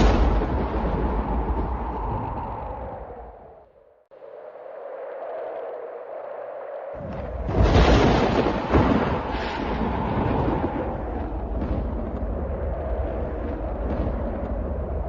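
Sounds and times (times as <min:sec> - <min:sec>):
thunder crack and rumble: 0:00.0 - 0:03.6, 0:07.0 - 0:15.0.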